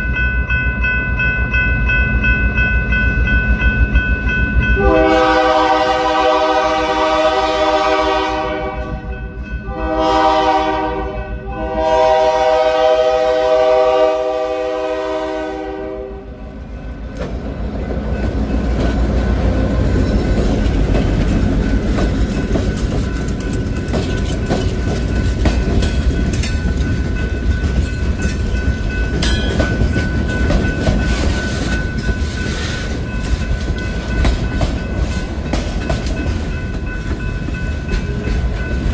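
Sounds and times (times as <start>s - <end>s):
train rumbling by: 0.0s - 38.9s
locomotive horn blasts: 4.8s - 16.4s
wheels clicking on rails: 16.9s - 38.9s.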